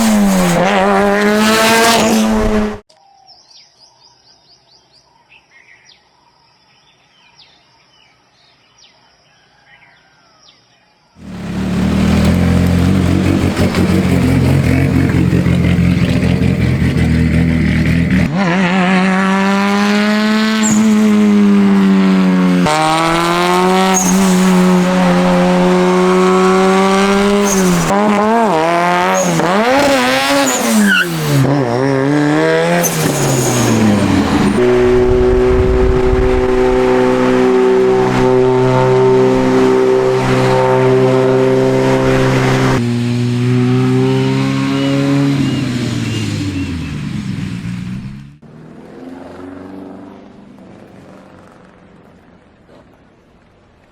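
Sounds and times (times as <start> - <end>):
turbocharged car engine revving: 0.0 - 2.9, 11.2 - 49.7.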